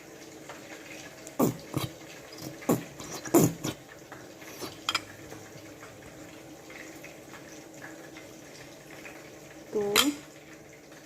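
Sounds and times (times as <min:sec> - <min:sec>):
ketchup squelching sputters: 0:01.3 - 0:03.8.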